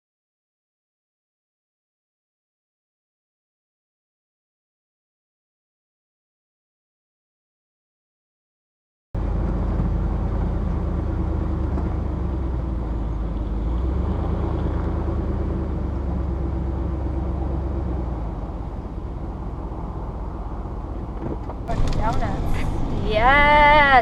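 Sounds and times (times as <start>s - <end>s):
road rumble: 9.2s - 24.0s
vehicle engine: 9.2s - 24.0s.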